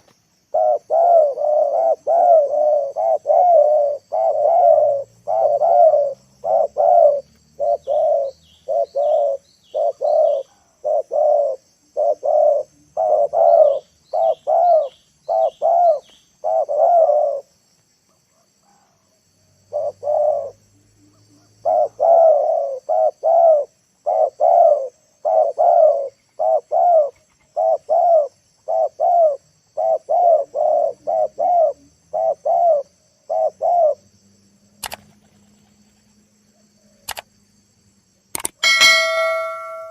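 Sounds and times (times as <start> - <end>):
faint high bird chirps: 0.0 - 17.5, 38.6 - 39.9
dove cooing: 0.5 - 17.5, 19.7 - 34.0.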